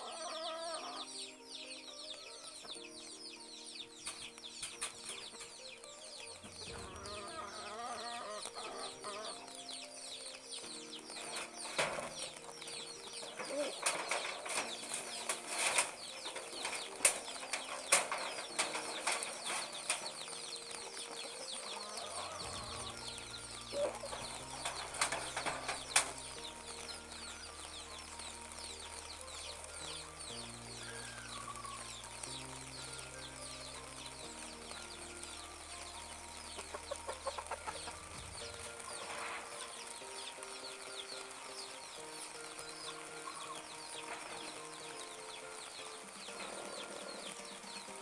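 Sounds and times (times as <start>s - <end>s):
chickens clucking: 0.0s - 48.0s
bamboo slats knocking and clattering: 11.1s - 21.4s, 22.4s - 26.6s.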